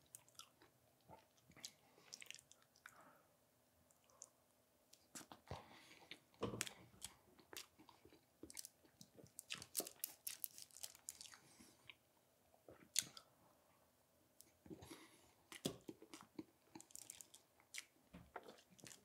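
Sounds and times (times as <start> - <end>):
chewing egg tart: 0.0 - 3.0, 3.9 - 12.0, 14.4 - 19.0
crisp pastry crunches: 8.4 - 11.4, 16.2 - 19.0.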